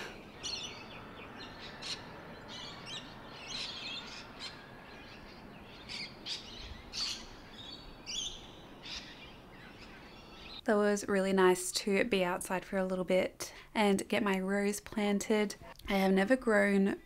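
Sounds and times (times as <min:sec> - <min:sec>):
birds chirping: 0:00.0 - 0:10.7
faint background hiss: 0:00.0 - 0:17.0.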